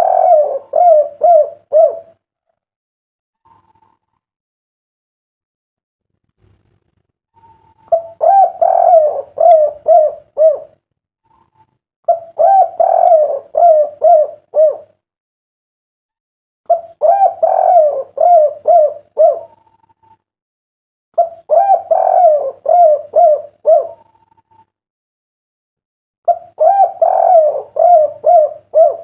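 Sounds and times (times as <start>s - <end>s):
dove cooing: 0.0s - 2.2s, 7.4s - 15.0s, 16.7s - 20.2s, 21.2s - 24.6s, 26.3s - 29.0s.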